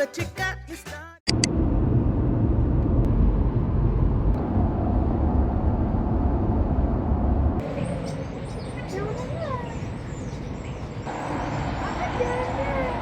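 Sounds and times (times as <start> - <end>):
vehicle rumble: 1.3 - 13.0.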